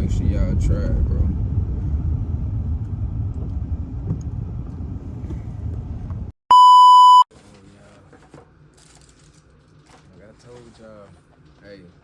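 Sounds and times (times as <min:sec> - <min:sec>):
high-pitched electronic beep: 0:06.5 - 0:07.2.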